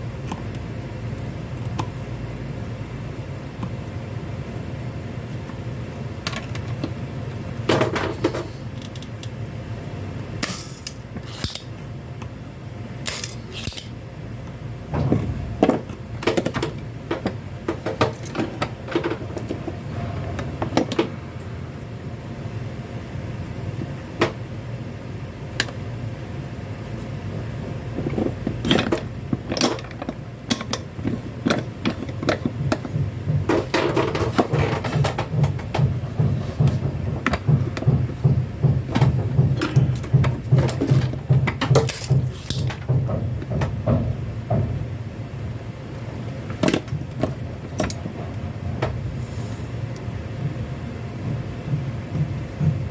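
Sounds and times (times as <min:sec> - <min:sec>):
low hum: 0:14.3 - 0:29.4.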